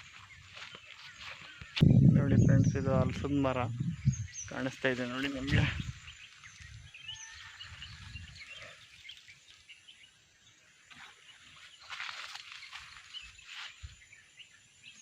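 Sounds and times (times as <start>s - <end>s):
birds chirping faintly: 0.0s - 15.0s
low rumble: 1.8s - 4.8s.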